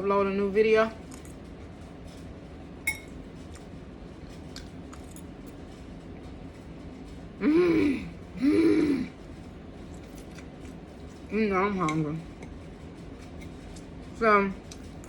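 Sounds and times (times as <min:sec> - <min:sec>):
metal utensil clinking on dish: 0:02.9 - 0:03.1.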